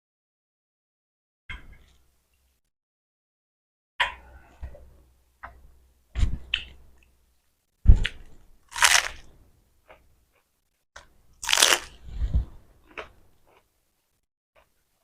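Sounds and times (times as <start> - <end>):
person chewing food: 8.0 - 12.2, 12.8 - 13.7.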